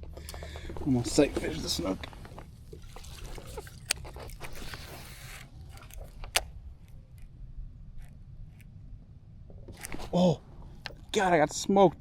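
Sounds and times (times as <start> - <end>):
fishing line zipping hiss: 4.4 - 5.5.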